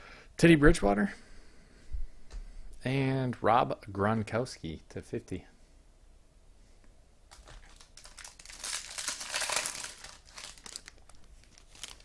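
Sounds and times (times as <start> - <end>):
plastic wrapper crinkling: 7.3 - 12.0.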